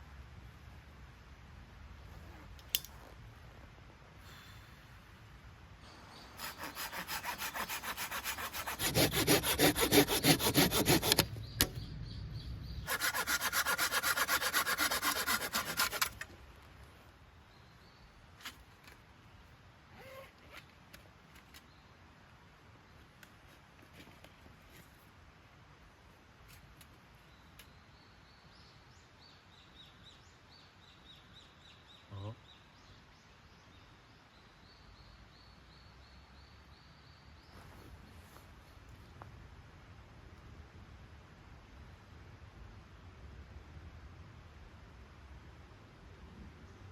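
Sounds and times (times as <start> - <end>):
hand saw cutting wood: 6.4 - 11.3, 12.9 - 16.3
bird chirping: 11.2 - 13.0.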